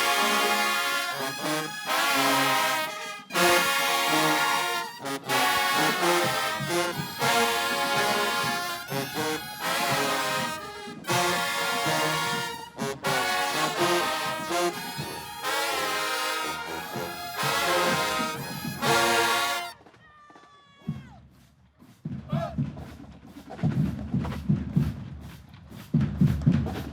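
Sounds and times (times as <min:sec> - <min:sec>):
marching band brass playing: 0:00.0 - 0:19.8.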